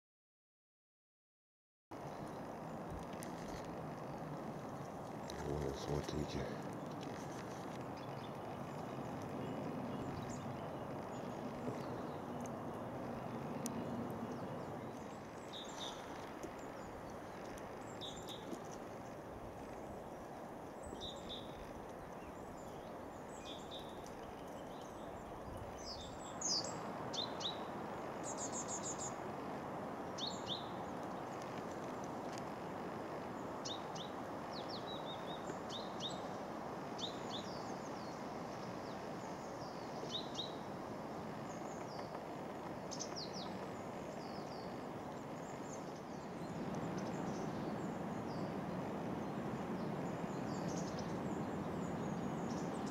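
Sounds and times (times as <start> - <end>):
bird calls and chirps: 2.0 - 29.2, 30.0 - 32.0, 42.8 - 48.6, 49.2 - 52.9.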